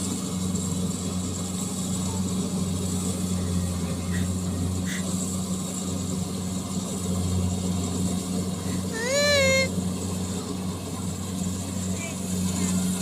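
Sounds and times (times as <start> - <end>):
harvester engine droning: 0.0 - 13.0.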